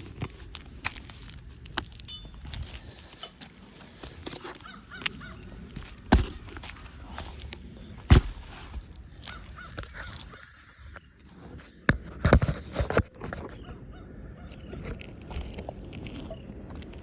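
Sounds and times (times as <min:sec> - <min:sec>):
faint bird calls: 0:02.8 - 0:11.1.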